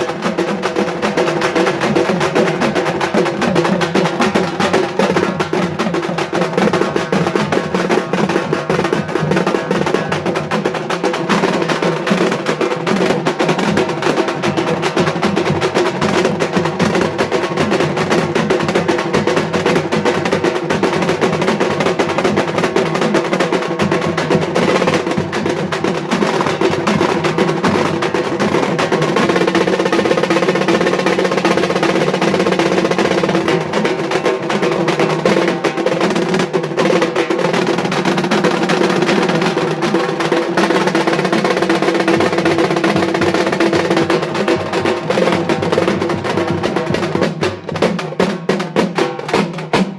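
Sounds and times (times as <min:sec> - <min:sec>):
frame drums beaten with sticks: 0:00.0 - 0:49.9.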